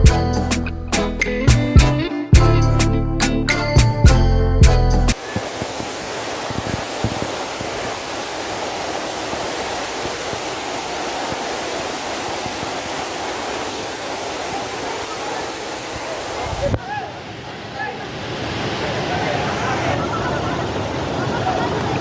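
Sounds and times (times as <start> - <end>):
rushing waterfall: 5.1 - 22.0.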